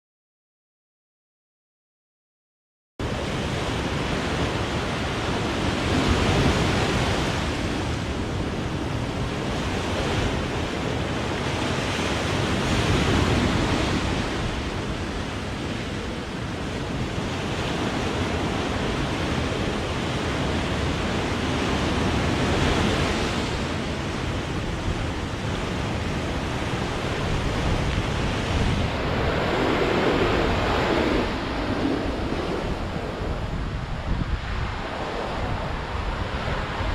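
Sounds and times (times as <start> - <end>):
sea waves breaking on shore: 3.0 - 36.9.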